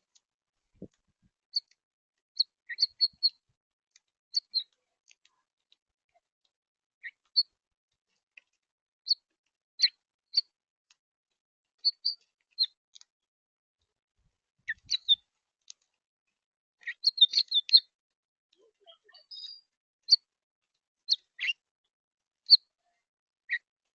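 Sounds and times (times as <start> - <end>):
birds chirping: 2.4 - 3.4, 4.4 - 4.8, 11.8 - 12.8, 14.7 - 15.2, 16.8 - 17.9, 18.7 - 20.2.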